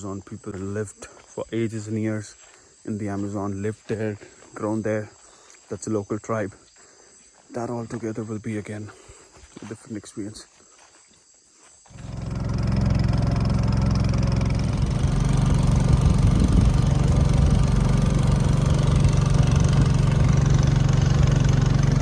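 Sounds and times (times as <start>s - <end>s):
motor engine running: 11.9s - 22.0s.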